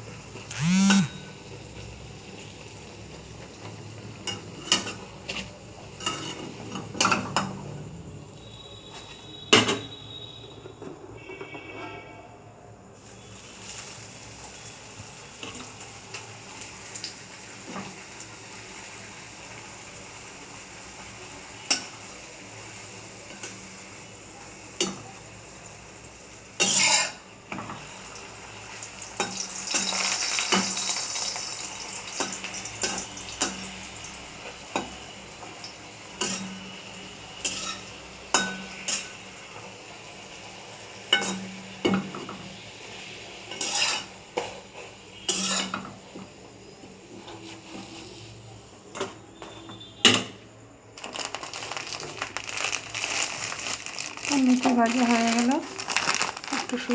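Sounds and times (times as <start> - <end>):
food sizzling in hot oil: 0.0 - 8.5, 12.9 - 49.0, 50.9 - 56.9
metal utensil scraping a pan: 4.2 - 7.3, 26.6 - 27.2, 36.2 - 36.7, 37.4 - 39.2, 43.5 - 46.0.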